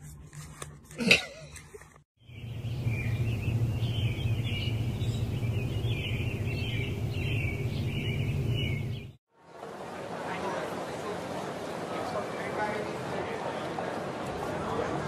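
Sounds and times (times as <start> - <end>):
small birds chirping: 2.2 - 9.2
steady low hum: 2.3 - 9.2.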